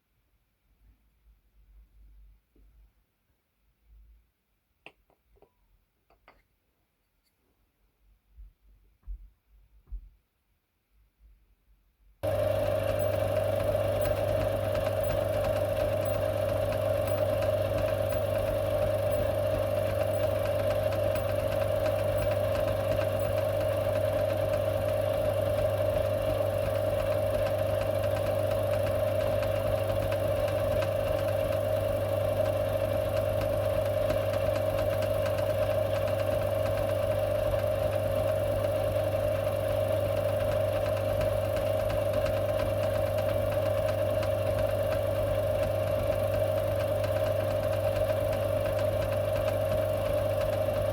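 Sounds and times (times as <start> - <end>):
lathe motor humming: 12.2 - 50.9.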